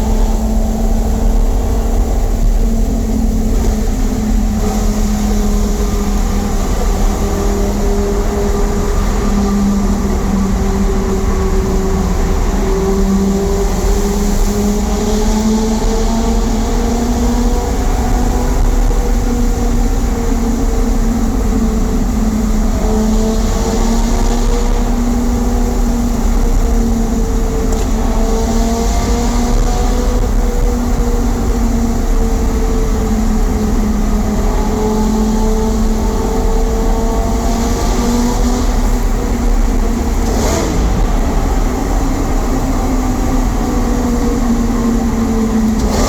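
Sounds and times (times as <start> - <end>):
car engine cruising: 0.0 - 46.0
low road rumble: 0.0 - 46.0.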